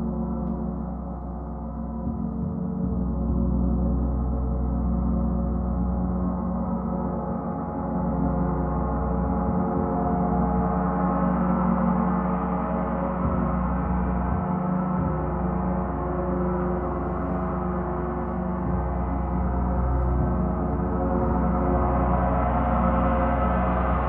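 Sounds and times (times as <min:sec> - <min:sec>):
gong sustained tones: 0:15.0 - 0:24.0.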